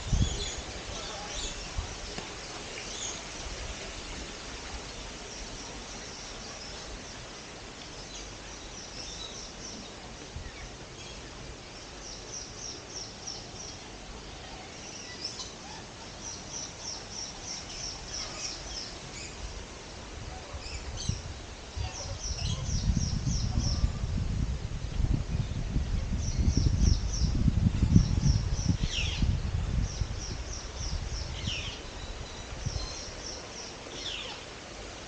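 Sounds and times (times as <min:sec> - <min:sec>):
steady outdoor hiss: 0:00.0 - 0:35.0
small birds chirping: 0:20.4 - 0:23.9, 0:25.4 - 0:34.6.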